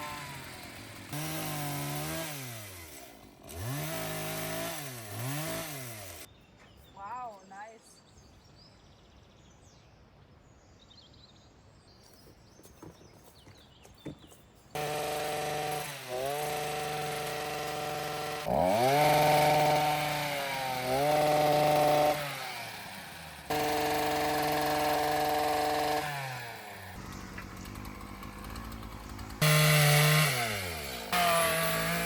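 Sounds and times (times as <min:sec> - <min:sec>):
chainsaw revving and cutting: 0:00.0 - 0:06.3, 0:14.8 - 0:32.0
faint birdsong: 0:06.2 - 0:14.8, 0:26.8 - 0:29.4.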